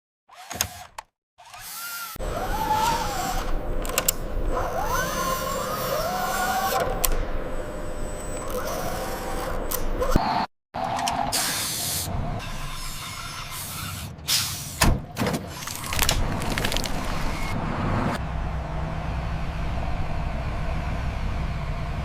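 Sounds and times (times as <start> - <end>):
low engine drone: 2.2 - 12.6, 15.7 - 22.0.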